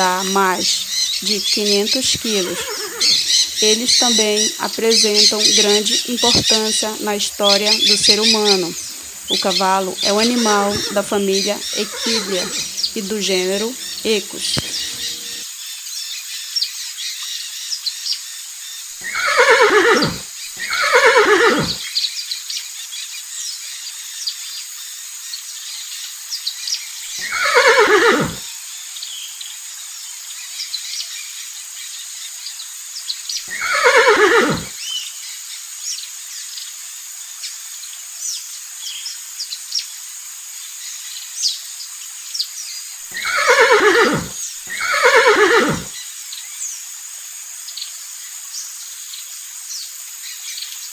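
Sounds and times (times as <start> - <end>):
faint chirps: 0.0 - 15.4
horse neighing: 0.0 - 15.4, 19.0 - 21.8, 27.2 - 28.4, 33.5 - 34.8, 43.1 - 45.9
steady high hiss: 0.0 - 50.9.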